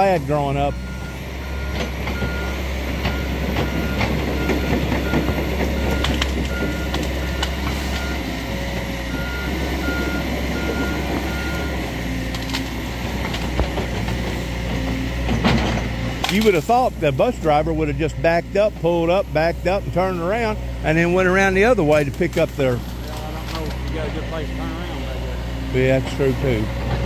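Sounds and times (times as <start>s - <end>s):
engine running: 0.0s - 27.0s
backup alarm beeping: 0.4s - 8.3s, 9.1s - 11.8s.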